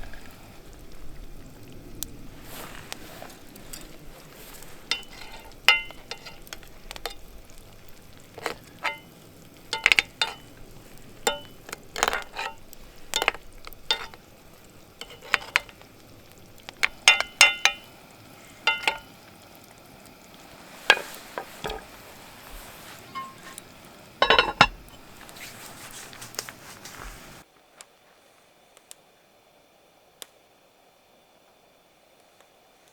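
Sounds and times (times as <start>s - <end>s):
food sizzling: 0.0s - 27.4s
metal utensil scraping a pan: 2.4s - 18.0s, 18.6s - 19.2s, 20.5s - 26.4s.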